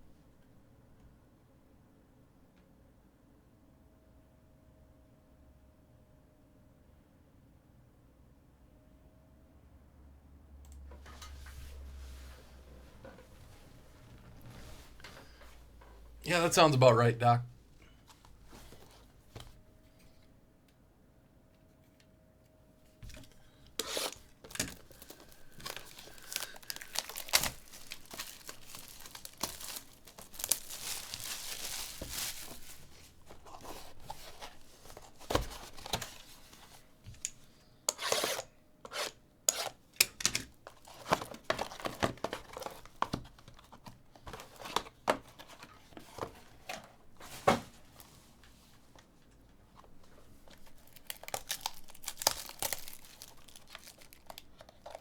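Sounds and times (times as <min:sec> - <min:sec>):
plastic packaging tearing and crinkling: 0:23.2 - 0:36.4, 0:40.6 - 0:43.4, 0:50.4 - 0:55.0.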